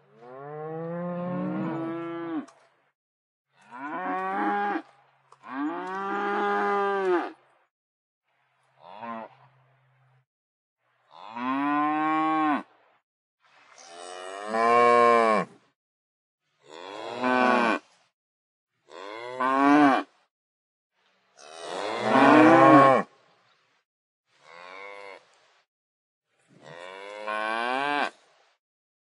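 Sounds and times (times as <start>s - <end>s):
cows mooing: 0.2s - 2.5s, 21.6s - 23.0s.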